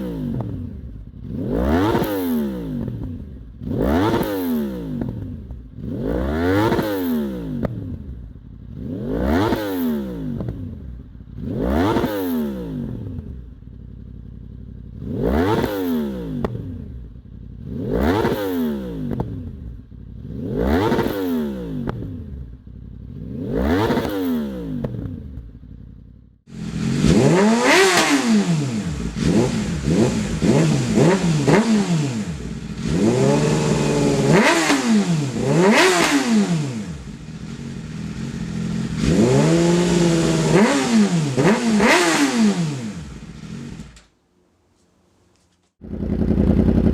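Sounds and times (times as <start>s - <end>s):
motorcycle engine revving: 0.0s - 44.1s, 45.8s - 46.9s
second motorcycle revving: 0.0s - 44.1s
exhaust crackle: 45.8s - 46.9s.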